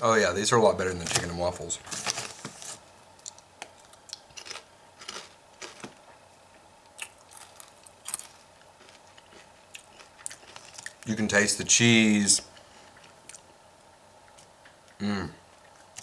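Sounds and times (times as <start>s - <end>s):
chewing crunchy chips: 3.2s - 6.0s, 6.9s - 11.2s.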